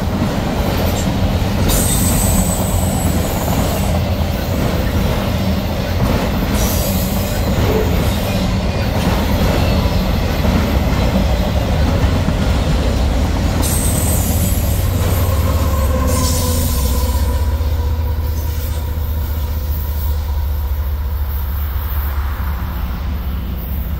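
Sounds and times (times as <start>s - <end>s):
train wheels rumbling on rail: 0.0s - 23.9s
wheel squealing against rail: 6.4s - 10.9s, 13.6s - 22.4s.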